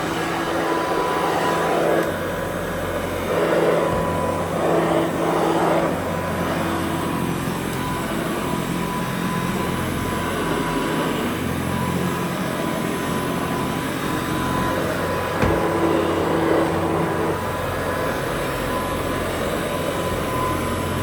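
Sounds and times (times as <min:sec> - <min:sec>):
vacuum cleaner running: 0:00.0 - 0:21.0
sharp knock: 0:15.4 - 0:15.8.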